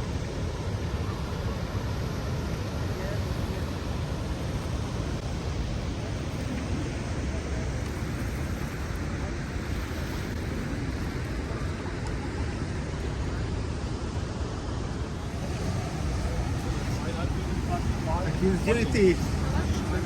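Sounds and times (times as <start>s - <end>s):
waterfall rushing: 15.1s - 20.0s.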